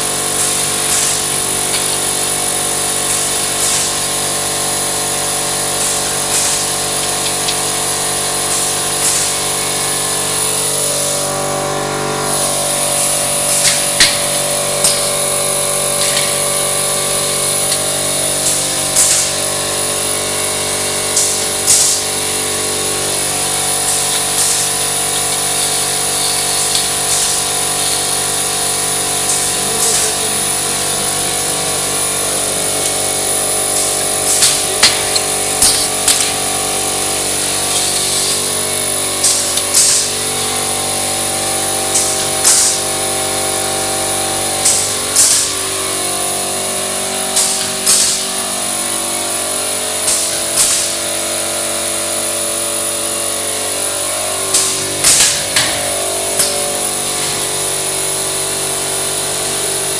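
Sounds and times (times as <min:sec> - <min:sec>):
machine mechanical hum: 0:00.0 - 0:59.9
sharp machine clacks: 0:00.0 - 0:59.9.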